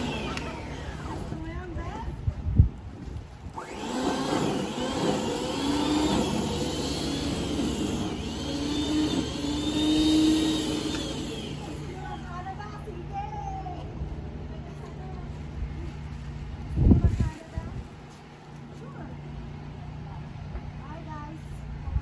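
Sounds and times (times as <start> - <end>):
motor running with whine: 0.0 - 2.1, 3.5 - 14.6.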